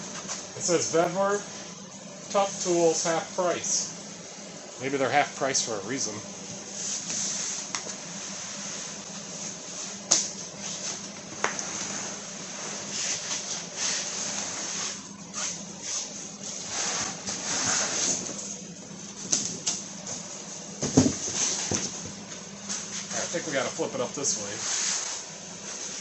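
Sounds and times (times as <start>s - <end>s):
steady low hum: 0.0s - 26.0s
packaging rustling and scraping: 10.6s - 18.6s
knocks on cardboard box: 20.8s - 22.2s.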